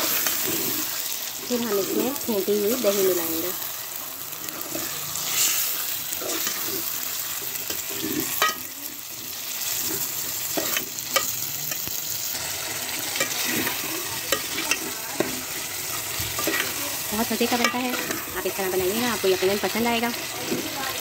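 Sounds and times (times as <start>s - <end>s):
chicken sizzling in oil: 0.0s - 21.0s
metal spoon clinking on pot: 8.4s - 8.7s.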